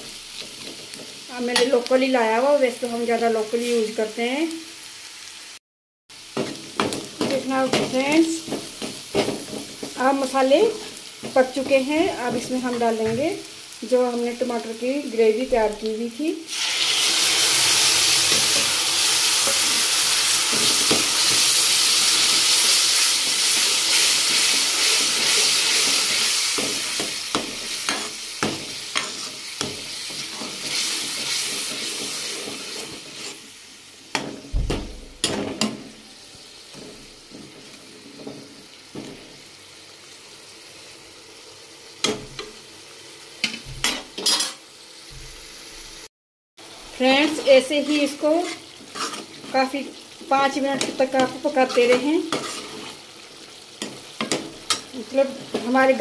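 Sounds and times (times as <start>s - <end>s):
spoon stirring and scraping pan: 0.0s - 1.8s, 6.3s - 13.4s, 18.1s - 34.5s, 36.6s - 39.4s, 43.4s - 44.6s, 47.0s - 56.0s
puree sizzling in hot oil: 0.0s - 56.0s.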